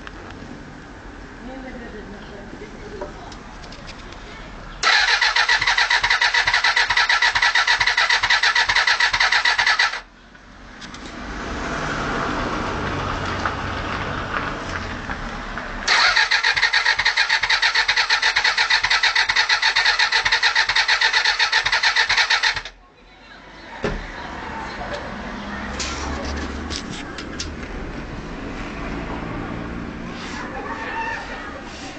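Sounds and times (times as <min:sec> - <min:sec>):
starter motor cranking engine: 0:04.8 - 0:10.0, 0:15.9 - 0:22.8.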